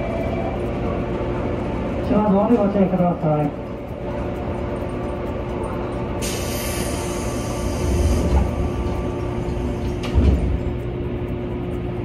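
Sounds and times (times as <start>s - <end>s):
train low rumble and hum: 0.0s - 12.0s
compressed air hiss: 6.2s - 8.3s.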